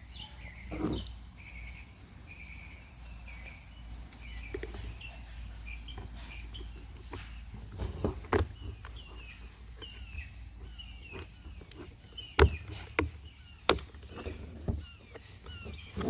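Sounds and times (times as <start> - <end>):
small bird chirping: 0.0 - 16.0.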